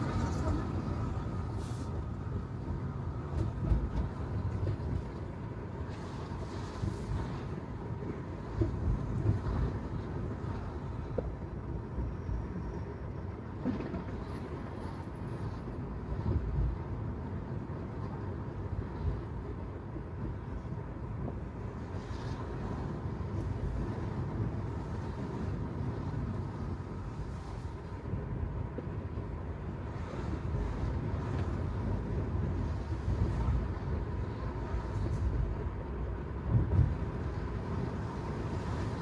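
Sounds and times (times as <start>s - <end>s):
wind noise on microphone: 0.0s - 7.5s, 21.1s - 39.0s
road and tyre rumble: 0.0s - 39.0s.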